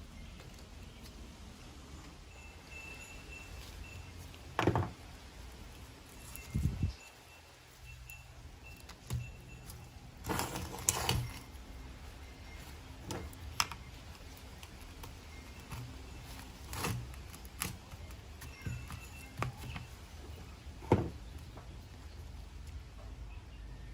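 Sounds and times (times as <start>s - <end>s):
tools and metal parts clinking: 7.8s - 21.2s.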